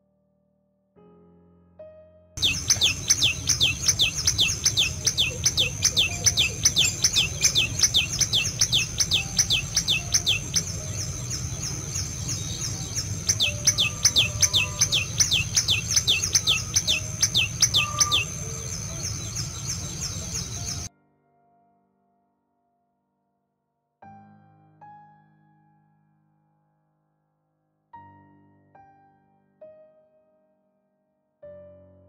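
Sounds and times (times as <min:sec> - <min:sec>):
bird calling sharp notes: 0:02.4 - 0:20.9.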